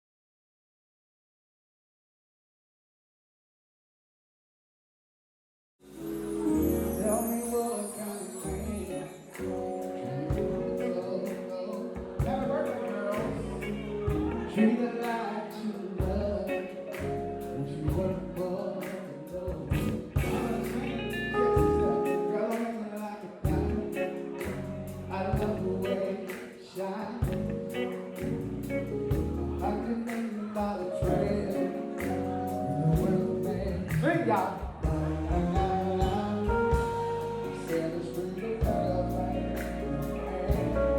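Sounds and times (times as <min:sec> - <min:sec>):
person singing: 0:05.9 - 0:28.2, 0:29.2 - 0:40.9
sustained keyboard chords: 0:05.9 - 0:40.9
bass: 0:06.0 - 0:07.8, 0:08.4 - 0:11.2, 0:12.0 - 0:14.8, 0:16.0 - 0:22.2, 0:23.4 - 0:26.2, 0:27.1 - 0:40.9
drum beat: 0:19.8 - 0:20.8.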